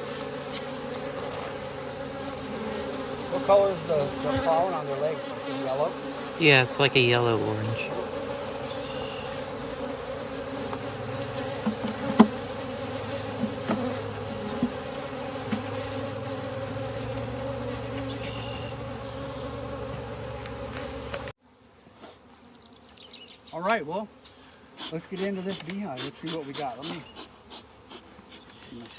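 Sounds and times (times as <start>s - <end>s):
honeybees buzzing: 0.0s - 28.9s.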